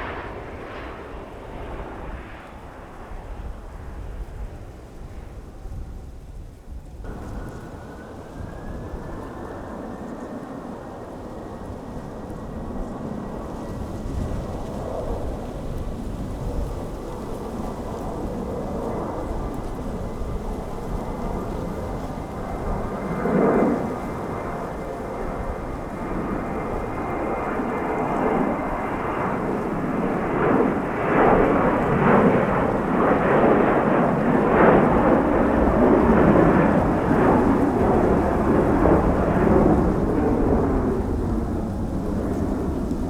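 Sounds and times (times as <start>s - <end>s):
jet engine roar: 0.0s - 5.7s, 7.0s - 43.0s.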